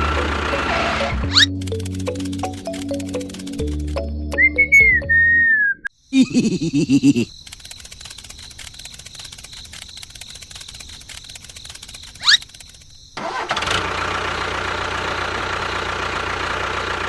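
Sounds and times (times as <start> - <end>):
faint rapid ticking: 1.4 - 4.4, 6.9 - 13.0.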